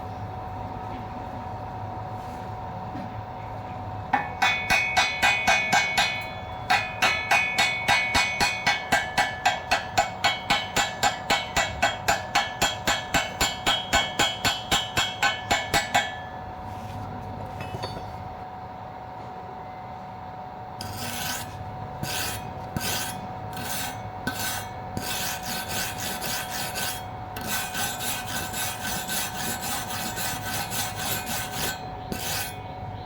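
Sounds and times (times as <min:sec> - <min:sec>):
steady hum: 0:00.0 - 0:33.0
hammer ringing on steel: 0:04.1 - 0:16.5.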